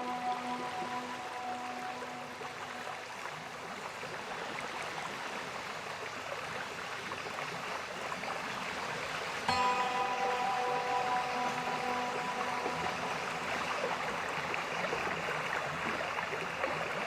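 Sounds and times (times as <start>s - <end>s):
background music with held tones: 0.0s - 3.5s, 9.5s - 17.0s.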